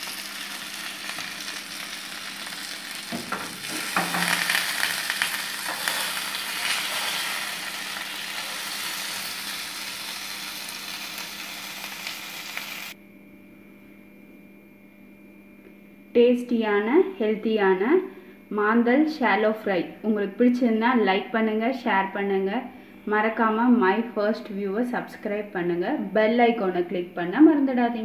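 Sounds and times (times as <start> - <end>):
oil sizzling in frying pan: 0.0 - 13.0
faint steady hum: 0.0 - 28.0.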